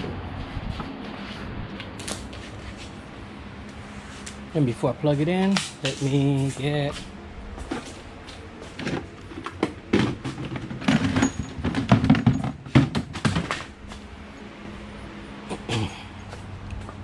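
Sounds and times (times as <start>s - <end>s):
low hum: 0.0s - 12.5s, 13.4s - 17.0s
equipment knocking and rattling: 8.7s - 13.8s.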